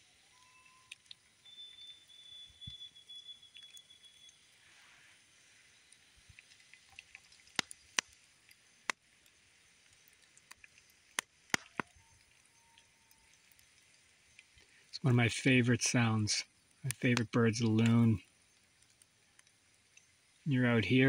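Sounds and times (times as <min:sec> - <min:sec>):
lakeside ambience: 0:00.0 - 0:21.0
sharp cracks: 0:07.4 - 0:08.2, 0:10.5 - 0:12.0.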